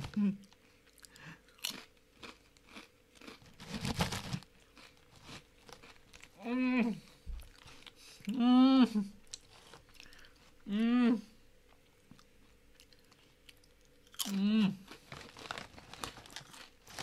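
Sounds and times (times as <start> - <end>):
person crunching a chip: 0.0 - 6.4, 12.8 - 17.0.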